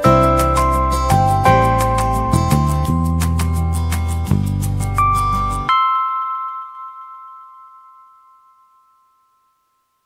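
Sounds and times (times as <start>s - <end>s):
background music: 0.0s - 7.2s
chime-like bell note ringing: 5.0s - 10.0s.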